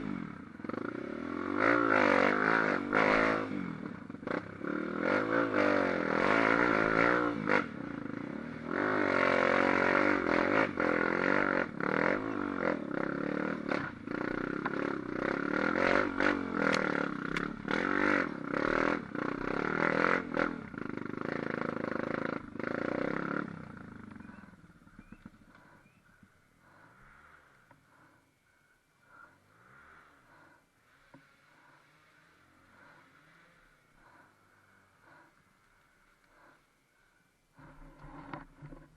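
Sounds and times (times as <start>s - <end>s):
engine revving: 0.0s - 25.8s, 31.5s - 35.4s.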